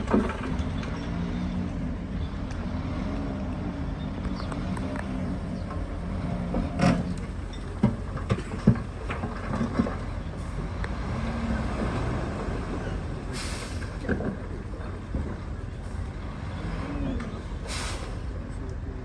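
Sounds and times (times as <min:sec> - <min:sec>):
diesel construction machinery running: 0:00.0 - 0:19.0
short hiss of air: 0:13.4 - 0:13.9, 0:17.7 - 0:18.2.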